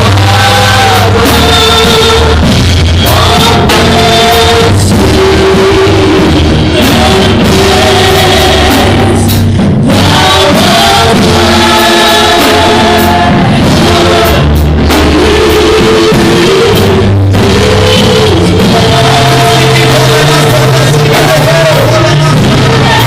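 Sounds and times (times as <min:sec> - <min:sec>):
band with drums: 0:00.0 - 0:23.0
people singing together: 0:00.0 - 0:23.0.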